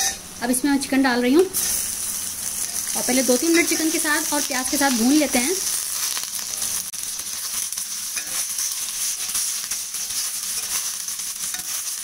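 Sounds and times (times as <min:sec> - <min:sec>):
chicken and onions sizzling in oil: 0:00.0 - 0:12.0
spatula scraping a wok: 0:01.6 - 0:02.9, 0:05.6 - 0:12.0.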